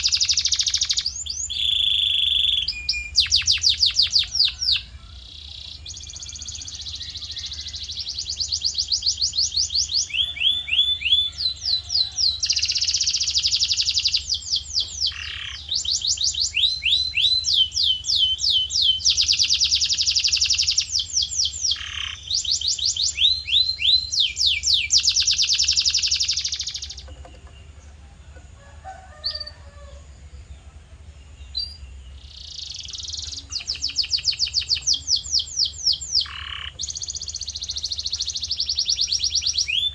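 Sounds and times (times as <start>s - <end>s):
canary singing trills: 0.0s - 39.9s
low steady hum: 0.0s - 39.9s.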